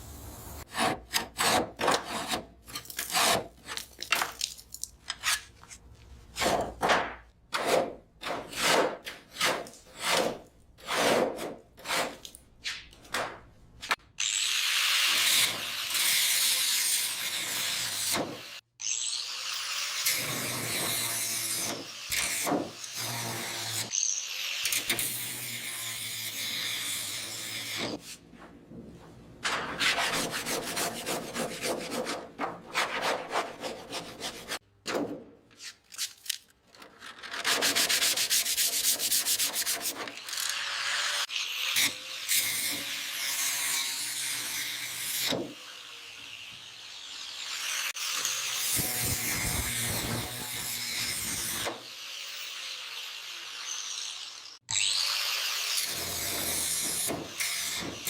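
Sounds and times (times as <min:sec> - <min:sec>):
sanding car bodywork: 0:37.5 - 0:40.0.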